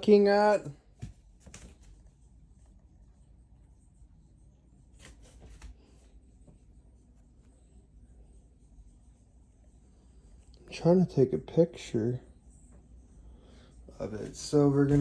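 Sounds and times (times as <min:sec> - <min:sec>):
faint room hum: 0:00.0 - 0:15.0
soft rustles and clicks: 0:00.8 - 0:02.8, 0:04.8 - 0:07.6.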